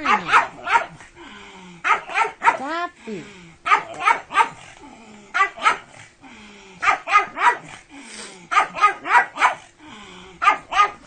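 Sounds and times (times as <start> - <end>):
small dog barking: 0.0 - 1.0, 1.8 - 2.7, 3.6 - 4.7, 5.3 - 6.0, 6.8 - 7.8, 8.5 - 9.7, 10.4 - 11.0.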